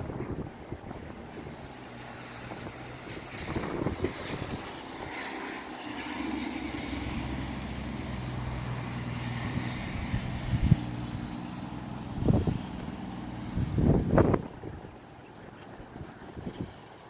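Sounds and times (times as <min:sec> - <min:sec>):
low engine hum: 0:00.0 - 0:17.0
wind buffeting microphone: 0:00.0 - 0:17.0.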